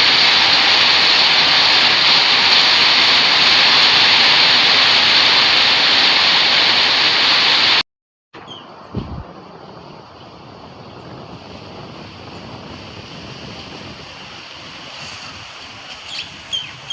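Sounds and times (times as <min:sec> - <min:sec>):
heavy rain pouring: 0:00.0 - 0:07.8, 0:08.7 - 0:16.9
low thump: 0:09.0 - 0:09.3.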